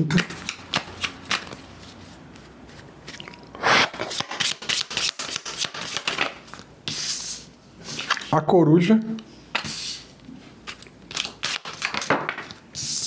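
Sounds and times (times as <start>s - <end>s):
card slaps: 0.1s - 1.6s, 4.0s - 6.4s
cards clicking: 0.2s - 1.6s, 10.7s - 12.6s
cards riffling: 0.2s - 1.6s, 3.9s - 6.7s, 10.6s - 12.6s.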